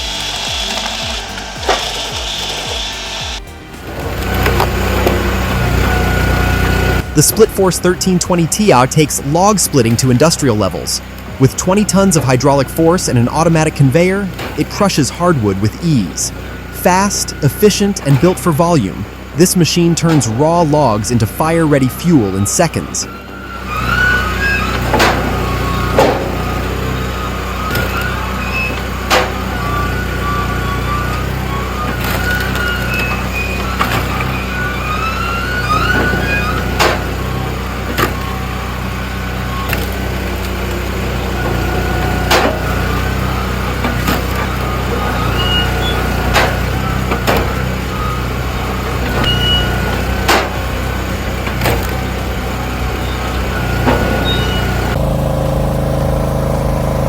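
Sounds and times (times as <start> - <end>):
log splitter humming: 0.0 - 57.0
high squeaking creaks: 20.1 - 55.0.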